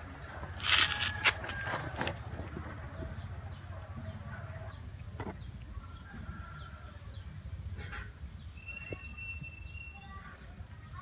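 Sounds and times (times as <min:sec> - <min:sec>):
bird chirping: 0:08.3 - 0:10.6.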